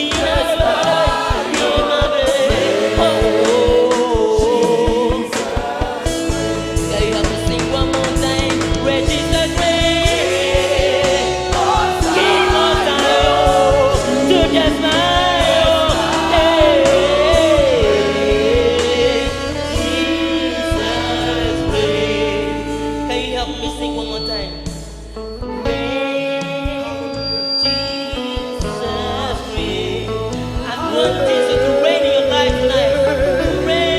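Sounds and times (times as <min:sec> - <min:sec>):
steady drum beat: 0:00.0 - 0:23.9
choir singing: 0:00.0 - 0:33.9
held keyboard chords: 0:00.0 - 0:33.9.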